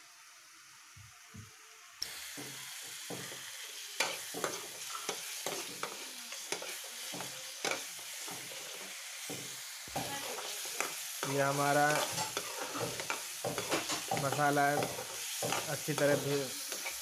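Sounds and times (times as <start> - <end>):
masala sizzling in oil: 0.0 - 17.0
metal ladle scraping a pan: 10.0 - 17.0.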